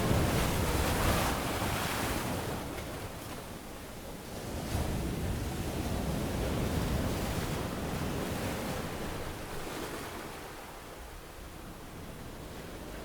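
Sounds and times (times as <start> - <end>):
ocean waves breaking on beach: 0.0 - 3.6.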